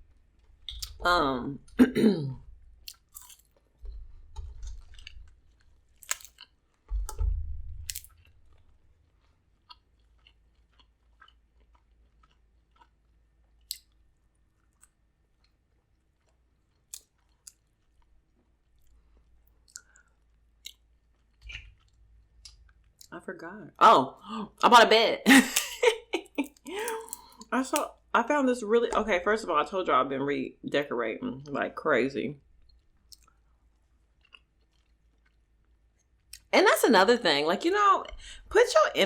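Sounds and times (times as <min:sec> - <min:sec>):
crab shell clicks and snaps: 0:02.8 - 0:03.5, 0:05.9 - 0:07.2, 0:07.9 - 0:08.2, 0:13.6 - 0:13.9, 0:16.8 - 0:17.6, 0:26.4 - 0:27.9
close chewing: 0:02.8 - 0:07.2, 0:07.9 - 0:23.1, 0:26.4 - 0:28.0, 0:32.6 - 0:36.5.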